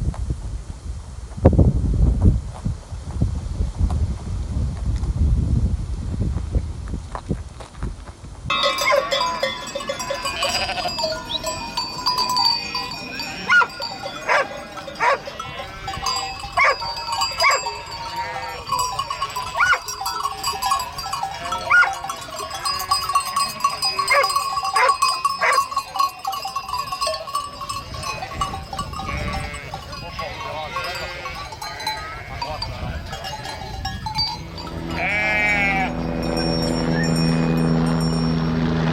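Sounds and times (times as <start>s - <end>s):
flock of sheep bleating: 8.5s - 25.8s, 28.0s - 33.6s, 34.4s - 36.1s.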